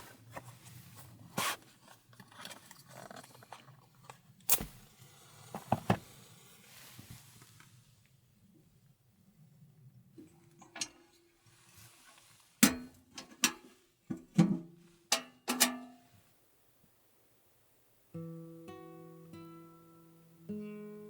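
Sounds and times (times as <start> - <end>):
acoustic guitar music: 18.1 - 21.0.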